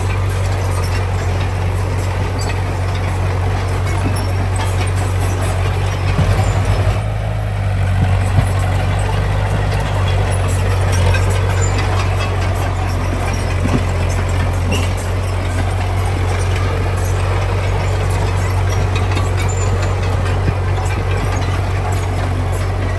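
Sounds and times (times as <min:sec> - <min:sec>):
diesel engine droning: 0:00.0 - 0:22.9.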